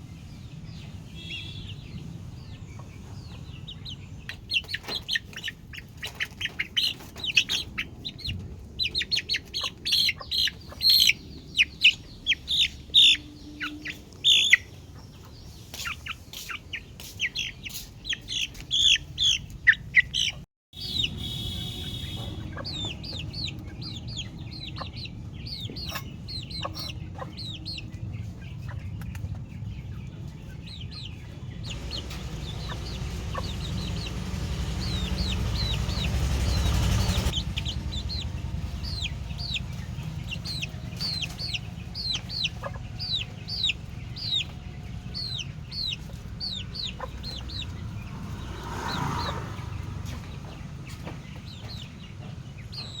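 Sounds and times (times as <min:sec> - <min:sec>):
chicks peeping: 0:00.2 - 0:53.0
low rumbling noise: 0:21.0 - 0:52.9.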